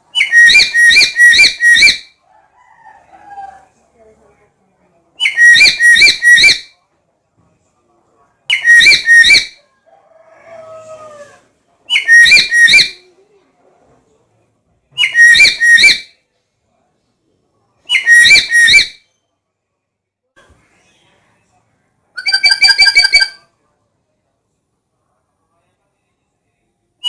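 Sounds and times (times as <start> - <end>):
parrot shrill calls: 0.2 - 2.1, 5.2 - 6.7, 8.5 - 9.6, 11.9 - 13.0, 15.0 - 16.1, 17.9 - 19.0, 22.2 - 23.4.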